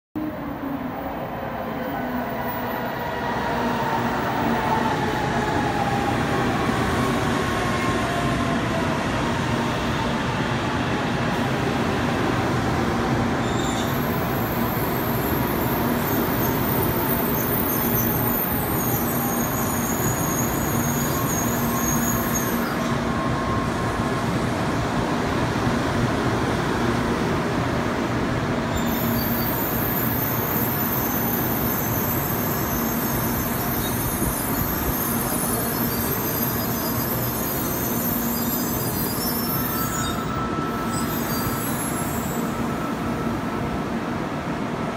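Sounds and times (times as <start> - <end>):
train rumbling and hissing: 0.2 - 44.9
high-pitched squeal from running gear: 13.4 - 23.7, 28.7 - 43.6.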